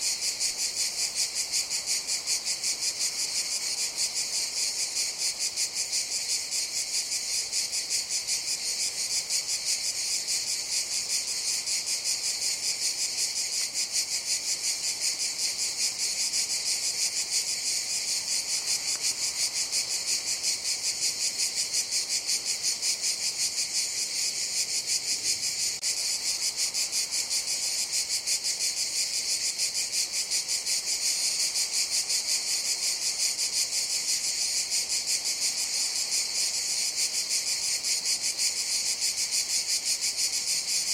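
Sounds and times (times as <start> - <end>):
cicadas buzzing: 0.0 - 40.9.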